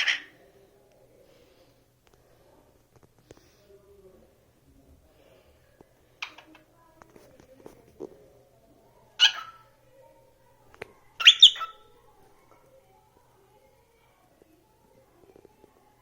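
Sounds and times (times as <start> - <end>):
pet bird calling: 9.2 - 9.6, 11.2 - 11.8.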